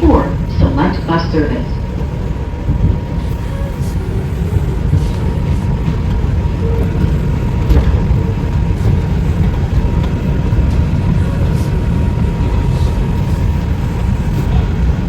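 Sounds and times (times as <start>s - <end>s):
subway train rumble: 0.0s - 15.0s.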